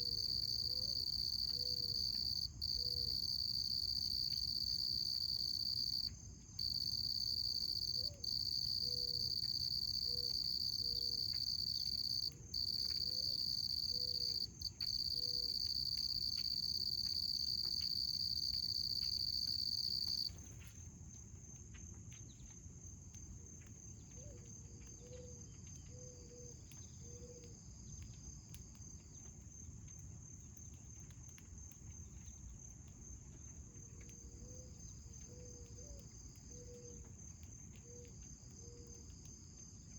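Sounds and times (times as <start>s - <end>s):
insect trilling: 0.0s - 20.4s
soft low cooing call: 8.0s - 8.2s.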